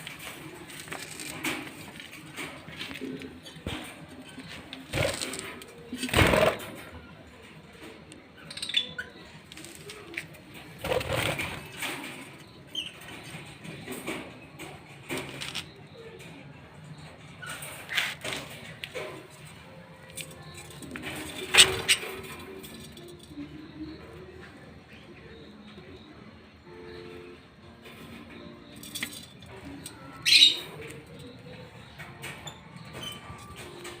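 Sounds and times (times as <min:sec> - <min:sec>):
wings flapping and rustling: 0:10.8 - 0:12.2
lovebirds chirping: 0:28.3 - 0:34.0.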